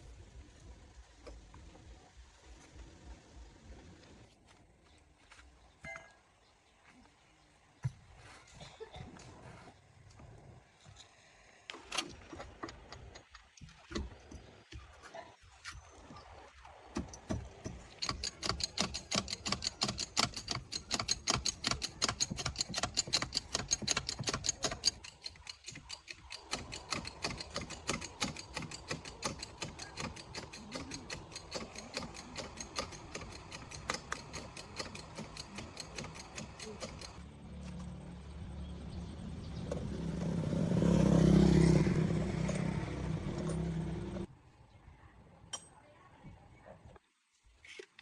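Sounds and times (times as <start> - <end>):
ratchet wrench clicking: 18.0 - 37.2.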